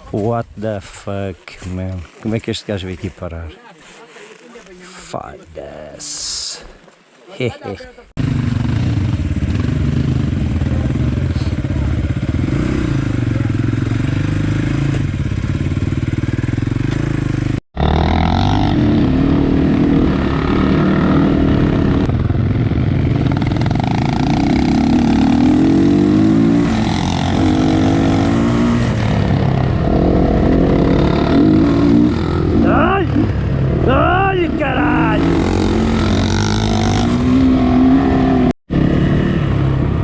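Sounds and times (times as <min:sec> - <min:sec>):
dirt bike engine revving: 0:08.2 - 0:40.0.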